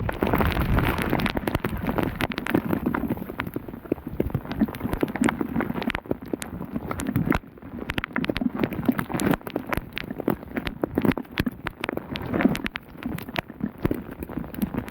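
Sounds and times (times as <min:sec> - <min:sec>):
heavy rain falling: 0:00.0 - 0:03.3
raindrops tapping close by: 0:00.0 - 0:14.9.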